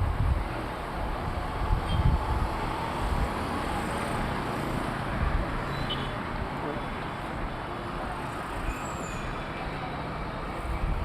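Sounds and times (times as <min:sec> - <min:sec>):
traffic road noise rumble: 0:00.0 - 0:11.0.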